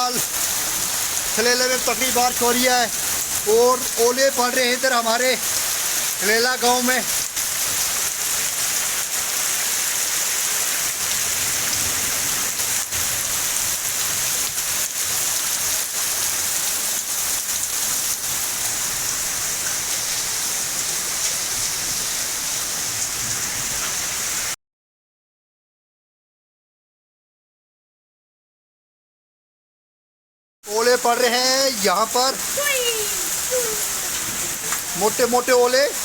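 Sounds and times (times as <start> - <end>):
heavy rain hissing: 0.0 - 24.6, 30.7 - 36.0
hailstones clicking: 32.5 - 36.0.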